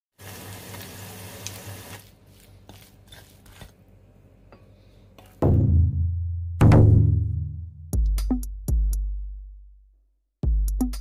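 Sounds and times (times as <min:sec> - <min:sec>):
hot oil sizzling and crackling: 0:00.1 - 0:02.1.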